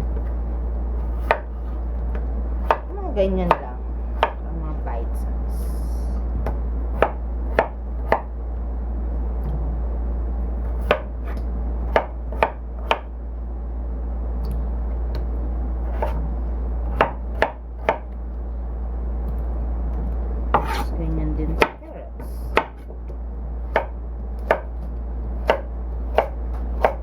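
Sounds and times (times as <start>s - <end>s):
steady low hum: 0.0s - 27.0s
knife chopping vegetables: 1.0s - 3.6s, 4.2s - 4.4s, 6.4s - 8.3s, 10.7s - 13.1s, 15.8s - 16.2s, 16.9s - 18.1s, 20.5s - 20.9s, 21.5s - 23.1s, 23.7s - 27.0s.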